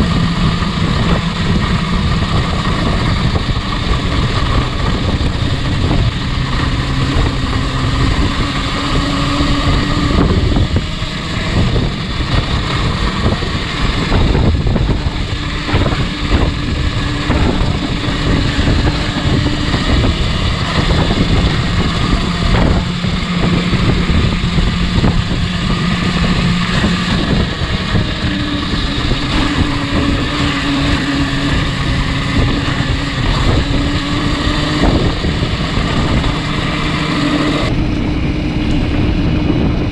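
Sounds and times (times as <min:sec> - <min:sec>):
motorcycle engine drone: 0:00.0 - 0:39.9
wind noise on microphone: 0:00.0 - 0:39.9.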